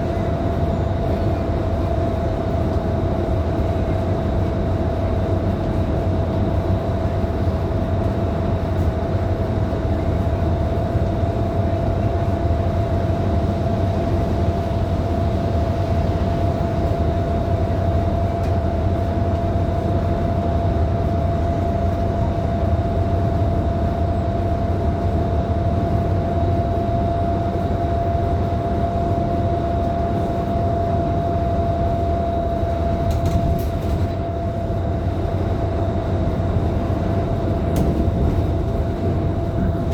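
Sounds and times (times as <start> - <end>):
bus engine drone: 0.0 - 39.9
steady whine: 20.8 - 39.9.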